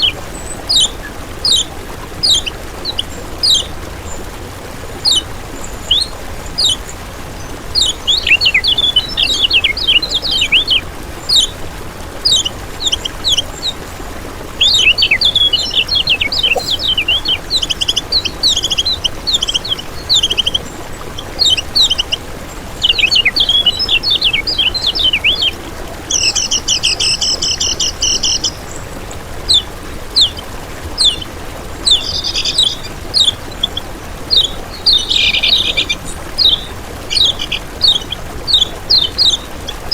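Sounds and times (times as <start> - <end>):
bird singing high chittering notes: 14.6 - 22.2, 29.5 - 39.9.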